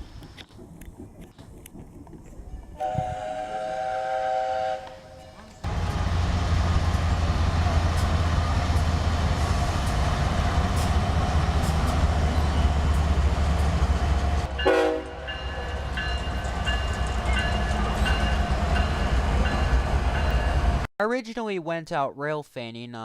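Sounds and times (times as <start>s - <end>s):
train rumbling by: 2.5s - 20.9s
train horn blast: 2.8s - 6.3s, 14.5s - 15.4s.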